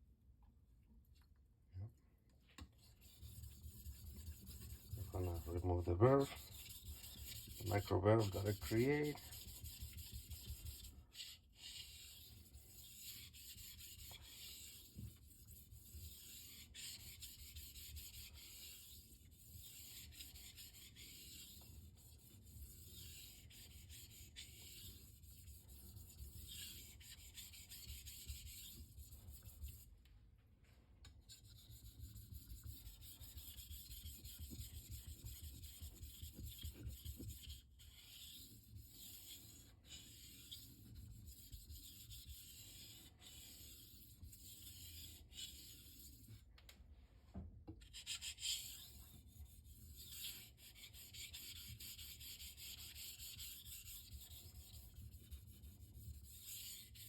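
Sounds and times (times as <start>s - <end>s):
knife strokes on whetstone: 3.2s - 28.8s.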